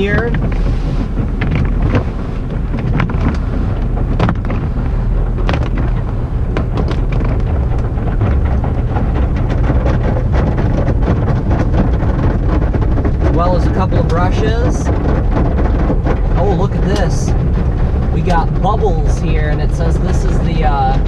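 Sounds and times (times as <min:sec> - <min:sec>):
cloth strips slapping on car: 0:00.0 - 0:08.2
low rumble: 0:00.0 - 0:21.0.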